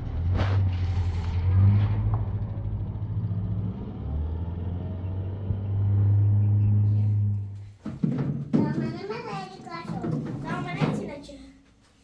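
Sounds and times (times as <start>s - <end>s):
car engine humming: 0.0s - 7.8s.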